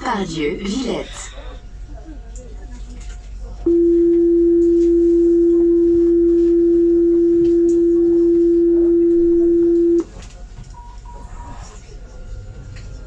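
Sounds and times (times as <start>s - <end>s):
tram electronic warning tone: 3.7s - 10.1s, 10.7s - 13.0s.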